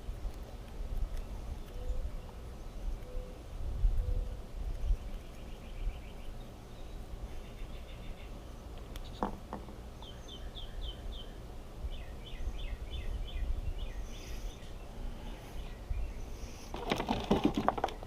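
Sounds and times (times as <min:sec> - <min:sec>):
small bird chirping: 0:04.0 - 0:09.3, 0:09.9 - 0:16.7
clicks and rustling: 0:16.7 - 0:18.0.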